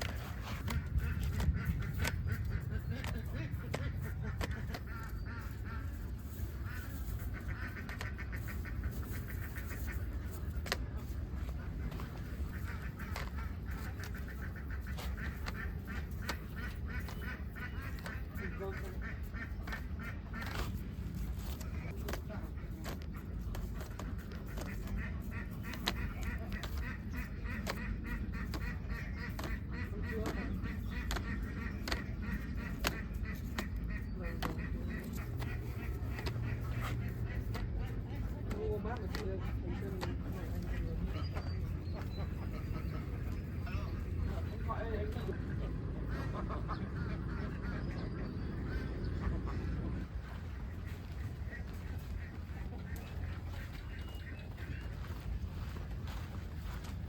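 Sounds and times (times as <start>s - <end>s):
ducks quacking: 0.0s - 57.0s
low rumble: 39.6s - 57.0s.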